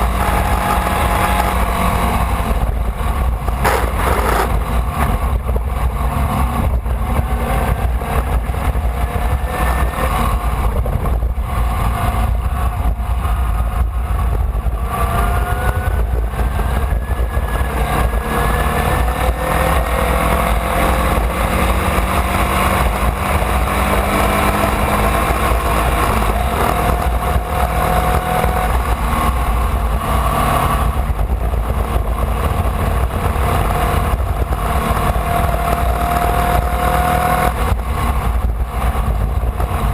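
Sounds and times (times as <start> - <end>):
racing car engine: 0.0 - 39.9
wind and road noise: 0.0 - 39.9.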